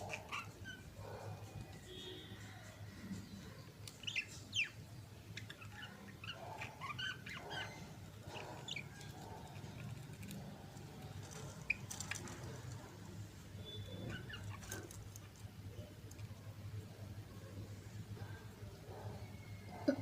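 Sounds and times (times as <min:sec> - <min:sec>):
budgerigars chirping: 0:00.0 - 0:00.9, 0:03.9 - 0:09.4, 0:13.6 - 0:15.0.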